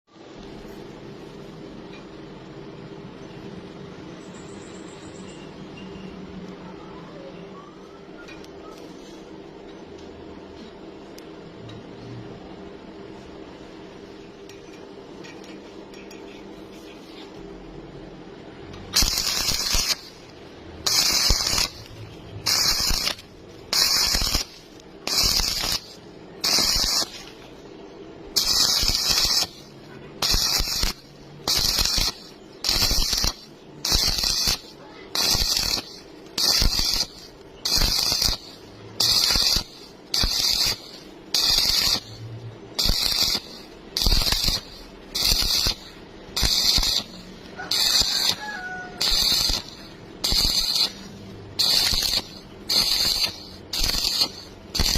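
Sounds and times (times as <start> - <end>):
welder low hum: 11.0 - 54.9
arc welding hissing crackle: 18.6 - 54.9.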